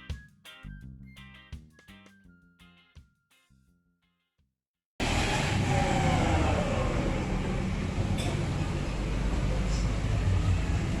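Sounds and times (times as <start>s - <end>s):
motor vehicle running: 5.0s - 11.0s
road noise: 5.0s - 11.0s.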